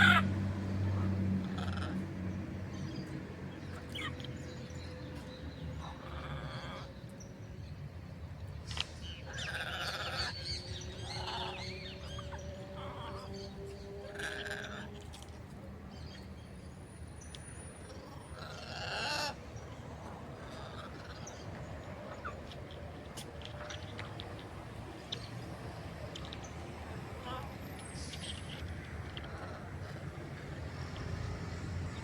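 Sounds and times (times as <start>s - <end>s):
macaws squawking: 0.0s - 0.4s, 1.0s - 2.1s, 9.3s - 13.3s, 18.0s - 24.4s
passing traffic hum: 0.0s - 32.0s.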